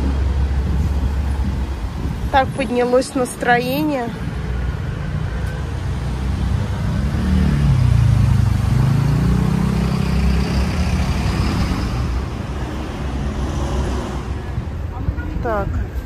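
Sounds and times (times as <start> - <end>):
street traffic rumble: 0.0 - 16.0
vehicle engine close by: 4.8 - 14.9.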